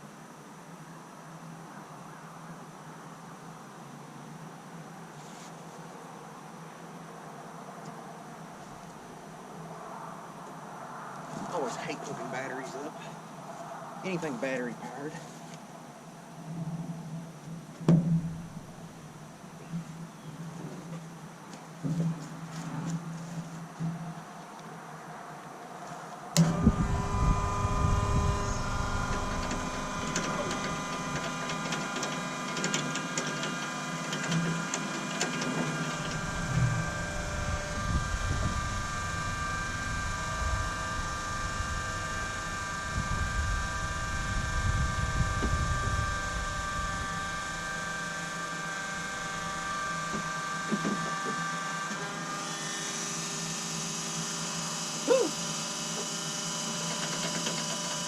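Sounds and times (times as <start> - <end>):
low rumble: 26.4 - 31.5, 36.1 - 47.1
fuel pump whining: 26.4 - 58.0.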